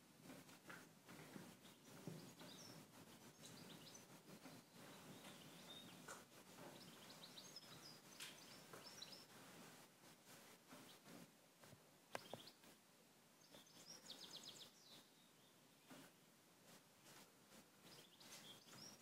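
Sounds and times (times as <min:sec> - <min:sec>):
distant bird chirps: 0:01.6 - 0:09.3, 0:12.1 - 0:12.7, 0:13.4 - 0:16.1.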